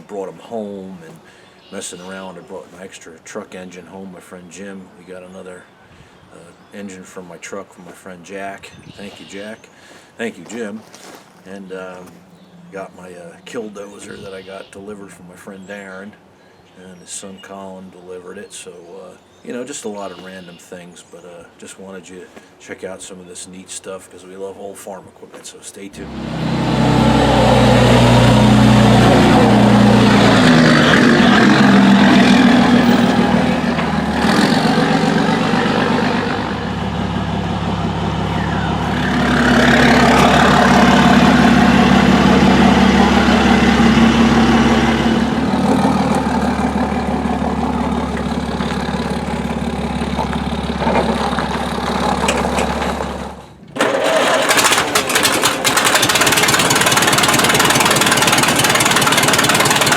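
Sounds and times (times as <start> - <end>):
engine idling with ticking knock: 26.0 - 59.9
engine running: 26.0 - 59.9.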